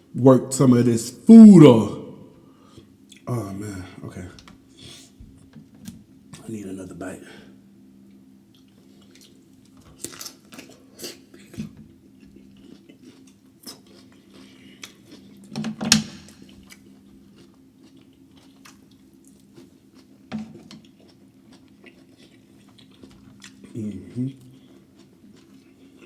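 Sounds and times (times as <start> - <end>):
person chewing with wet smacks: 3.1 - 3.3, 8.1 - 15.6, 16.4 - 26.0.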